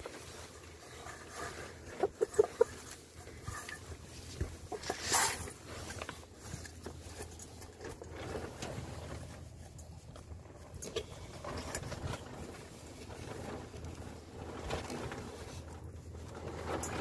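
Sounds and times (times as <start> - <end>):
chicken clucking: 1.8 - 3.1, 4.7 - 5.2.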